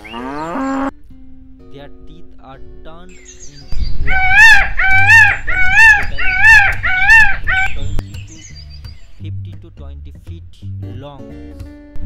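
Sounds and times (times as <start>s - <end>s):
bird calling loudly: 0.0s - 0.9s, 3.2s - 9.1s.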